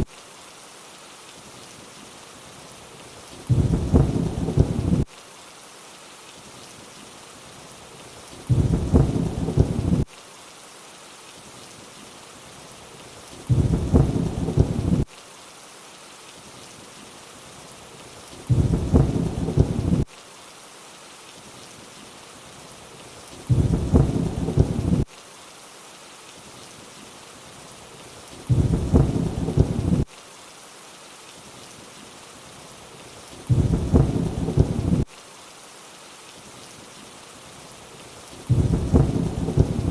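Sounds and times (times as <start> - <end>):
steady rainfall: 0.0 - 39.9
low rumble of thunder: 3.5 - 5.1, 8.5 - 10.1, 13.5 - 15.1, 18.5 - 20.1, 23.5 - 25.1, 28.5 - 30.1, 33.5 - 35.1, 38.5 - 39.9.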